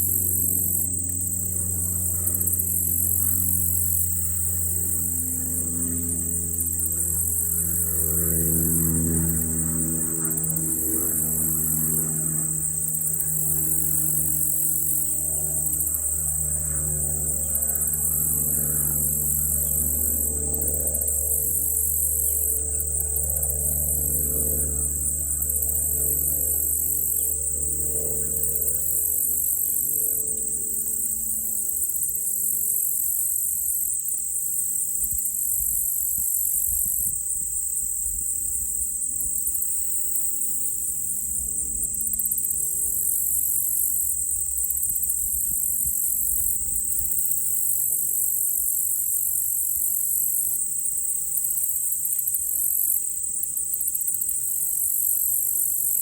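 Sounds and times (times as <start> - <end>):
crickets trilling: 0.0 - 56.0
high-pitched insect chorus: 0.0 - 56.0
low steady drone: 0.0 - 56.0.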